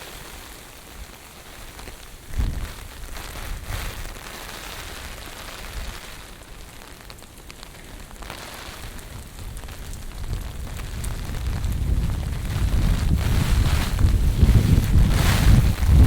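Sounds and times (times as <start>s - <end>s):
rain hissing on pavement: 0.0s - 16.0s
wind buffeting microphone: 2.2s - 4.2s, 8.8s - 16.0s
strong wind gusting: 2.3s - 4.1s, 9.1s - 16.0s.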